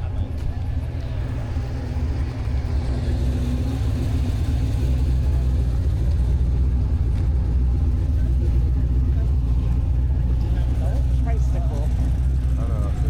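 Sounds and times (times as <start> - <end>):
car engine running: 0.1 - 13.0.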